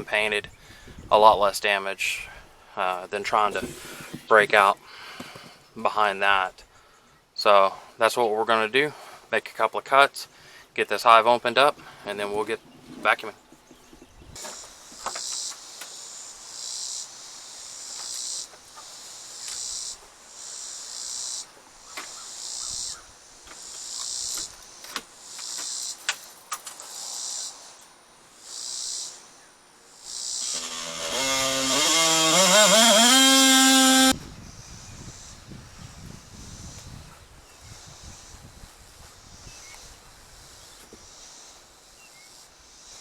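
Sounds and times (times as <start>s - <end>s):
cicadas buzzing: 14.4s - 43.0s
power tool cutting board: 30.4s - 34.2s.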